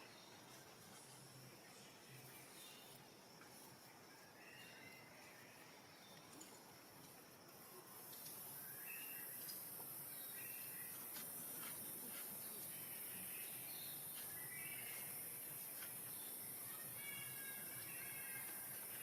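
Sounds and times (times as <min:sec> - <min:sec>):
insects hissing: 0:06.7 - 0:19.0.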